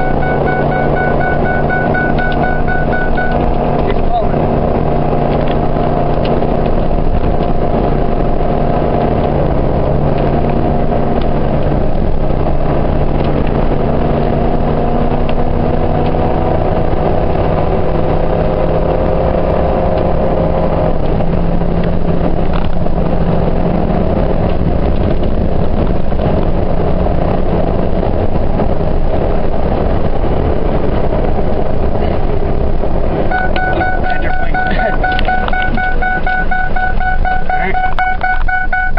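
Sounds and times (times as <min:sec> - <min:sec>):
steady high tone: 0:00.0 - 0:03.6, 0:33.3 - 0:38.9
pickup truck engine running: 0:20.6 - 0:38.9.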